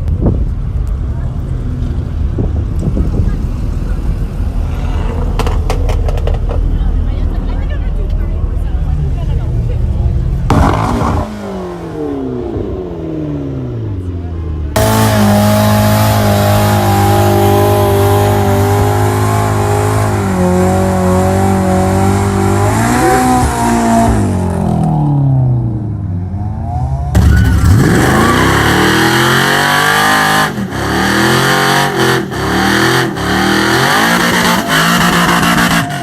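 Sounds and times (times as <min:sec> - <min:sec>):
car engine revving: 0:09.9 - 0:36.0.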